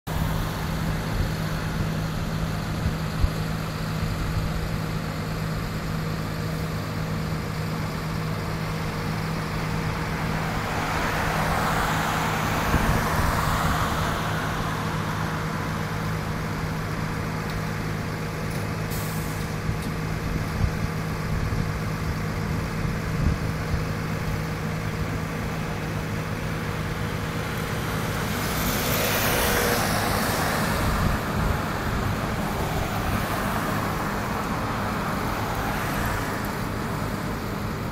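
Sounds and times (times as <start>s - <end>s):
combine harvester engine running: 0.1s - 37.9s.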